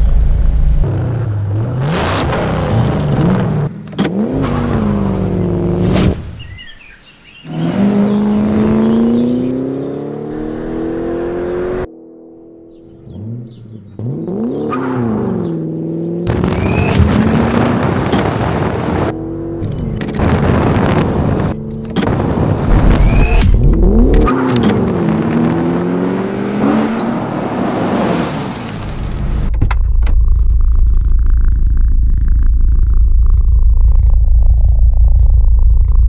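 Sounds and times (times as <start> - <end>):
car engine revving: 7.5 - 28.4.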